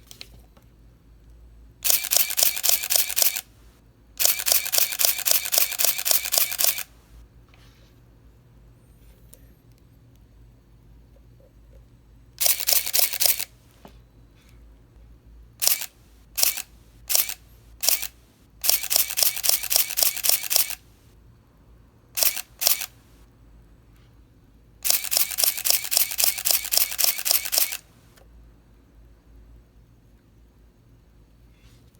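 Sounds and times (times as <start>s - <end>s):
camera shutter and motor drive: 1.8s - 3.6s, 4.2s - 7.2s, 12.4s - 13.6s, 15.6s - 20.9s, 22.2s - 23.2s, 24.8s - 28.2s.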